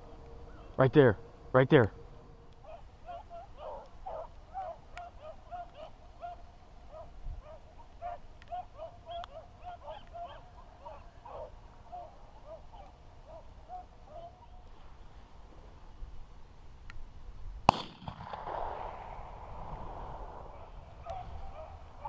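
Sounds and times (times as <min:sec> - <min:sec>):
beagles baying: 0:00.0 - 0:14.9, 0:20.4 - 0:22.0.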